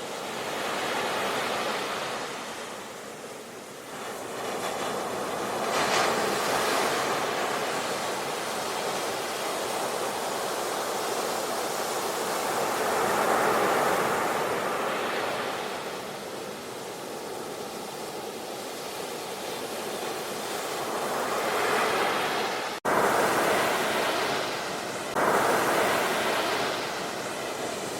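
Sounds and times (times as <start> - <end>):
ocean surf breaking on a beach: 0.0 - 27.9.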